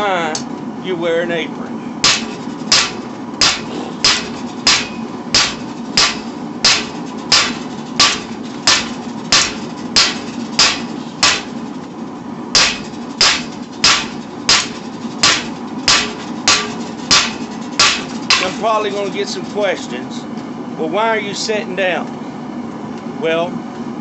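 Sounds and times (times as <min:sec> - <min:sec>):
steady background noise: 0:00.0 - 0:24.0
hammer striking steel on anvil: 0:02.0 - 0:11.6, 0:12.5 - 0:18.6.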